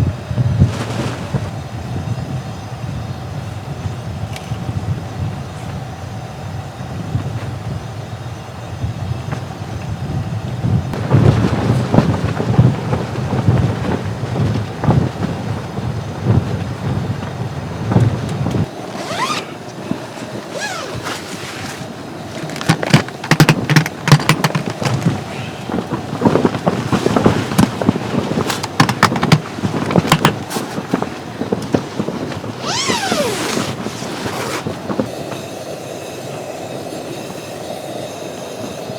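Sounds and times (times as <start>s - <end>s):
storm wind gusting: 0.0s - 20.8s, 21.8s - 35.8s
tent fabric flapping: 0.3s - 1.8s, 10.9s - 35.2s.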